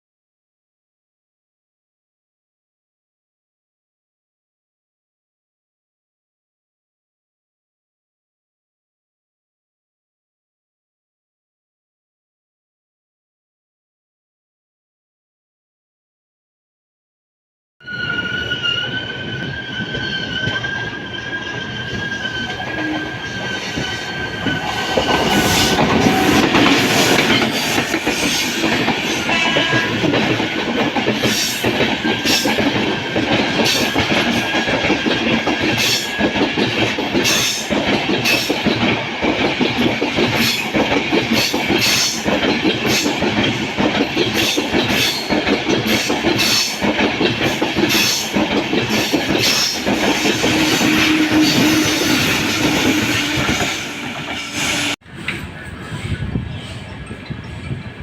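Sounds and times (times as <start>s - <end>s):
train wheel squeal: 17.8s - 38.7s, 40.3s - 43.2s, 44.2s - 58.0s
train running rumble: 21.6s - 58.0s.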